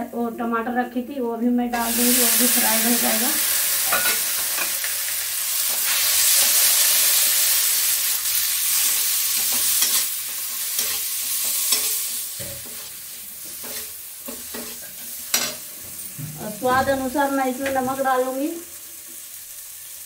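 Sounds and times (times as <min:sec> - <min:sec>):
tomatoes sizzling in oil: 0:00.2 - 0:20.0
metal spatula stirring: 0:08.8 - 0:15.6.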